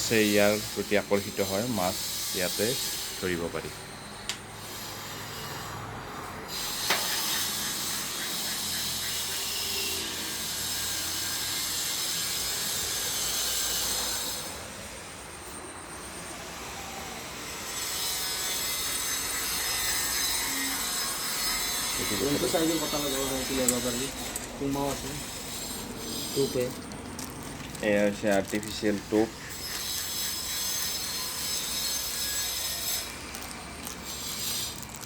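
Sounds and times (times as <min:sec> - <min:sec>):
ratchet-like clicking: 0:21.6 - 0:35.0
scratchy rustling of tackle: 0:25.6 - 0:35.0.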